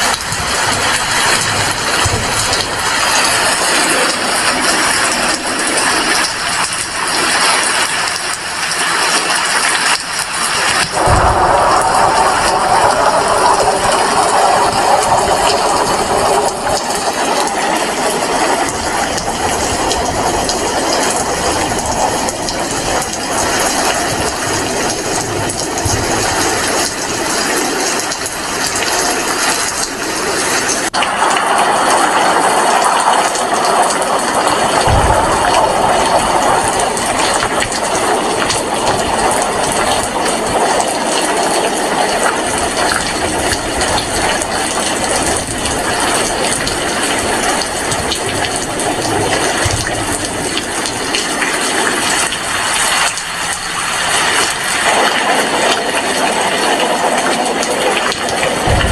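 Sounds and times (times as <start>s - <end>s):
heavy rain: 0.0s - 58.9s
low thump: 10.9s - 14.0s, 34.8s - 37.8s, 58.6s - 58.9s.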